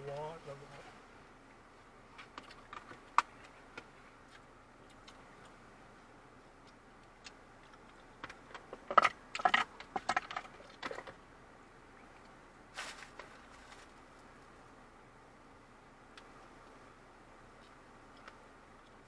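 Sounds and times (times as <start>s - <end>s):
short rustle: 12.7s - 14.5s.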